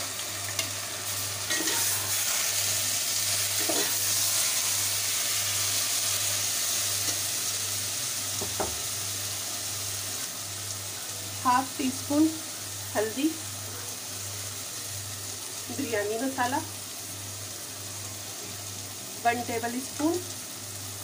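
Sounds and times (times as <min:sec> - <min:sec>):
onions sizzling in hot oil: 0:00.0 - 0:21.0
metal ladle scraping pot: 0:01.5 - 0:02.2, 0:03.6 - 0:04.0.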